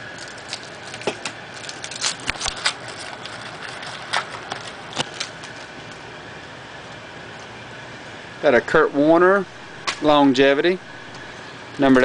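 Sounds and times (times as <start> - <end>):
cards and wrappers snapping and crinkling: 0.0 - 6.0.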